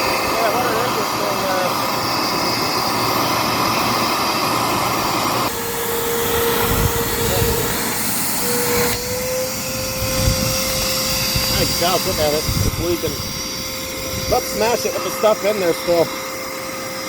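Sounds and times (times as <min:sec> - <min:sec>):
upright vacuum cleaner running: 0:00.0 - 0:17.0.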